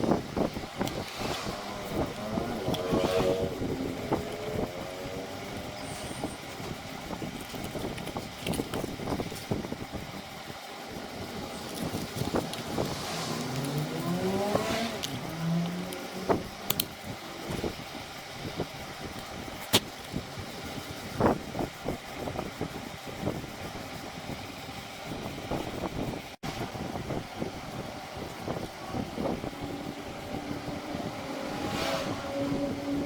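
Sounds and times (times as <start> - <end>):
small engine revving: 0.0 - 9.6, 10.8 - 18.7, 27.4 - 33.0.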